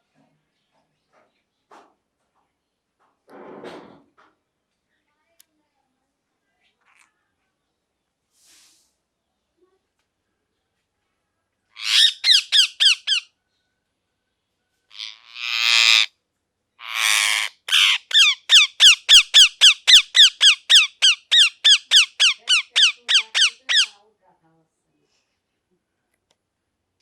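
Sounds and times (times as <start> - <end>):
parrot chirping: 11.8 - 13.3, 14.9 - 16.1, 16.8 - 24.0
parrot screeching: 11.8 - 13.3, 14.9 - 16.1, 16.8 - 24.0.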